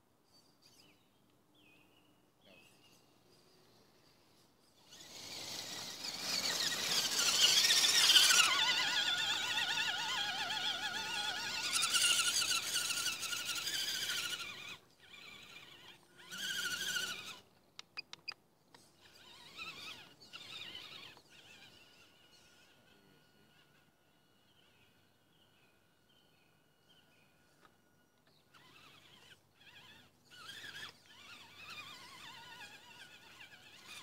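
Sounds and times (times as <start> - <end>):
toy truck motor whining: 4.8 - 24.4, 27.6 - 34.0
tyre and drivetrain noise: 4.9 - 15.4
sharp clicks: 17.7 - 18.8.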